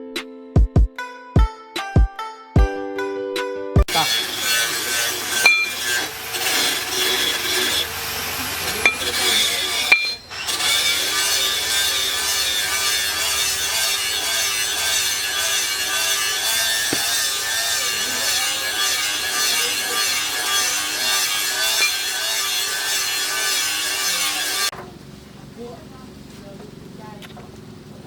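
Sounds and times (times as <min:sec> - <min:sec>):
hand tool rasping: 0:03.9 - 0:24.7.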